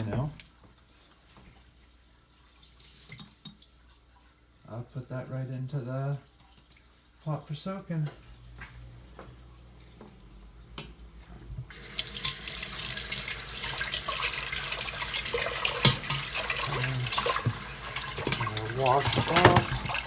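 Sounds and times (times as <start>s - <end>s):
tap water running into sink: 11.6s - 20.0s
utensils knocking: 14.5s - 20.0s.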